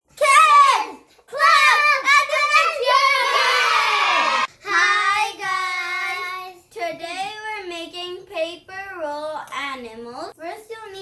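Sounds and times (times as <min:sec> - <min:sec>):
child singing: 0:04.6 - 0:06.6.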